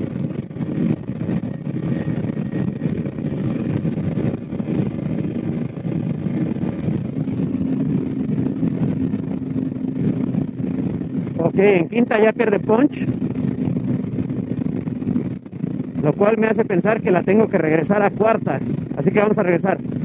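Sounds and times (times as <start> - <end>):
motorcycle engine labouring: 0.0 - 20.0.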